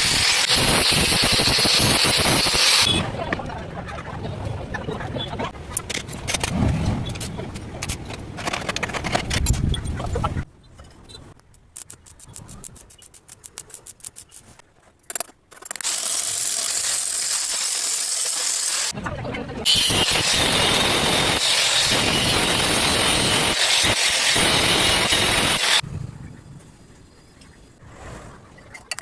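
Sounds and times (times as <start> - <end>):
metal clattering and scraping: 5.4 - 11.1
loud steady hiss: 19.7 - 25.8.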